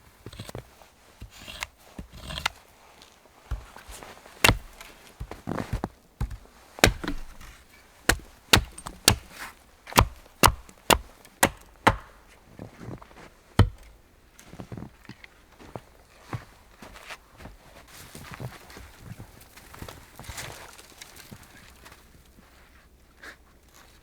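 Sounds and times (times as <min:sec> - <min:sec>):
axe chopping wood: 0:03.5 - 0:12.4, 0:13.6 - 0:14.0.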